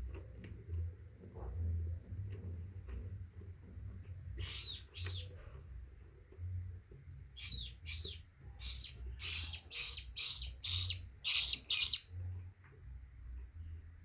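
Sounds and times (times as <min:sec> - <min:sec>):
parrot chicks chirping: 0:04.4 - 0:05.4, 0:07.3 - 0:12.2.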